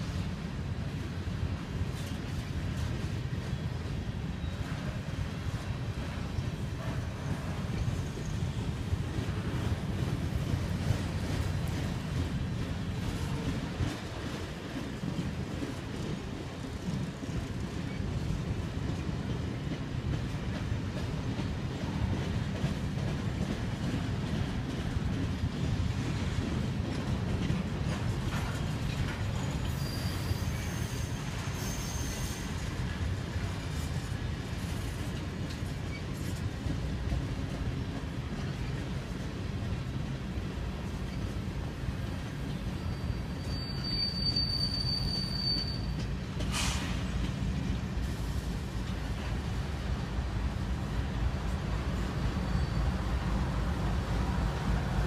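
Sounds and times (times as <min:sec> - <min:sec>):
train wheels rumbling on track: 0:00.0 - 0:55.0
faint high wheel squeal: 0:29.0 - 0:32.7, 0:42.5 - 0:47.0, 0:52.0 - 0:53.3.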